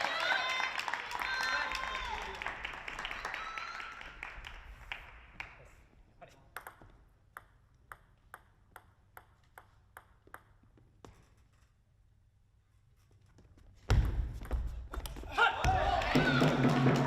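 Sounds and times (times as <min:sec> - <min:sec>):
applause: 0:00.0 - 0:05.7, 0:15.8 - 0:17.0
table tennis ball clicking: 0:06.5 - 0:10.8.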